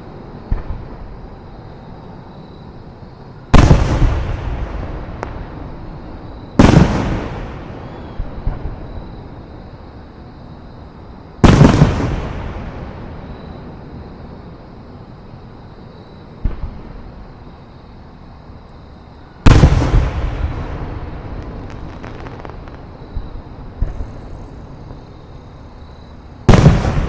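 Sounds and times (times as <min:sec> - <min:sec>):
fireworks booming with echo: 0:03.5 - 0:09.2, 0:11.4 - 0:13.7, 0:16.4 - 0:17.3, 0:19.4 - 0:27.0
small fireworks pops: 0:03.6 - 0:05.9, 0:19.5 - 0:27.0.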